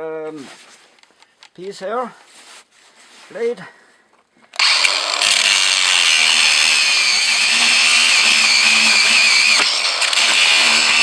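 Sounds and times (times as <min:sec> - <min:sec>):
power tool cutting metal: 0:04.6 - 0:11.0.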